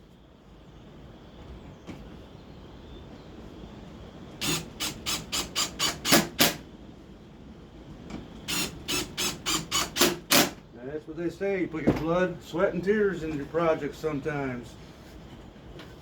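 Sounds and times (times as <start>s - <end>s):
faint high hum: 0.0s - 16.0s.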